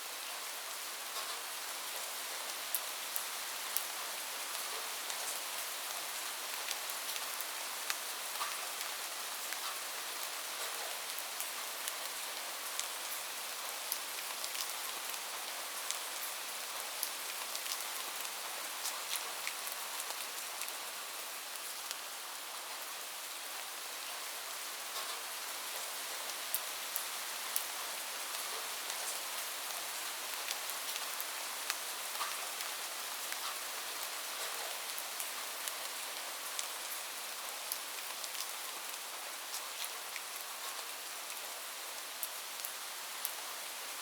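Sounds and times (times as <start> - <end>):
rain falling: 0.1 - 44.0
raindrops ticking on surface: 4.5 - 20.8, 25.0 - 41.4.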